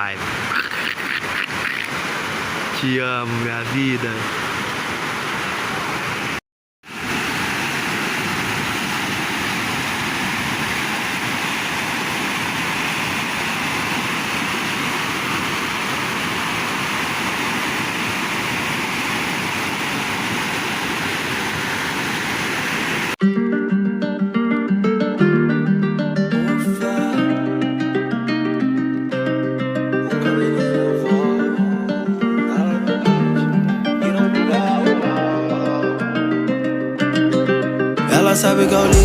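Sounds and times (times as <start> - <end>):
waterfall rushing: 0.0 - 23.2, 30.1 - 36.4, 38.1 - 39.0
acoustic guitar music: 23.2 - 39.0.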